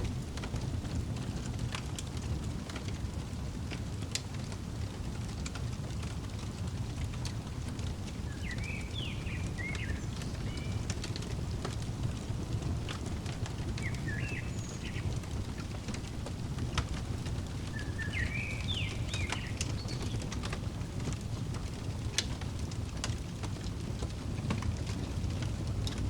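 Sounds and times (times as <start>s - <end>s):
fire crackling and popping: 0.0s - 26.0s
small bird chirping: 7.8s - 21.2s.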